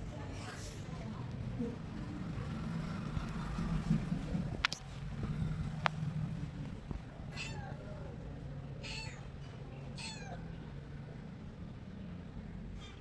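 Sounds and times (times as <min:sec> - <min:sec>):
steady low hum: 0:00.0 - 0:13.0
cat meowing: 0:07.3 - 0:08.1, 0:08.8 - 0:09.3, 0:09.9 - 0:10.4.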